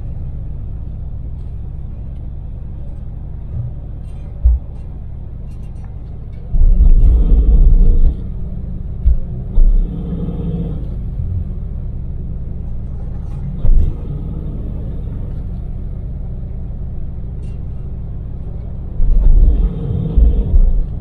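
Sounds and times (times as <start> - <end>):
van engine and road drone: 0.0 - 21.0
loud low thumps: 3.5 - 5.1, 6.5 - 11.7, 13.6 - 15.5, 19.0 - 21.0.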